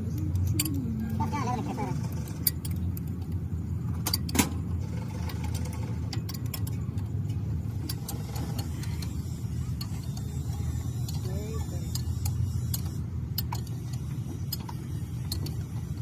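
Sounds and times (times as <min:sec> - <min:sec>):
engine humming: 0:00.0 - 0:16.0
metallic tool clicks and taps: 0:00.1 - 0:00.9.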